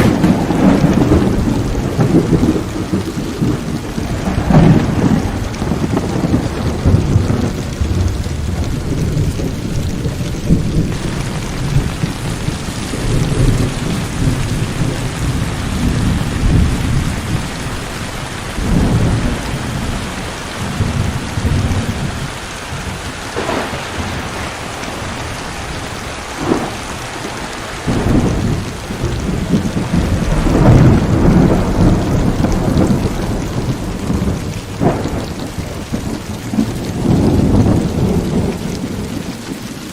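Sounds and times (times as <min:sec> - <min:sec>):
heavy rain pouring: 0:00.0 - 0:39.9
thunder rumbling: 0:00.0 - 0:39.9.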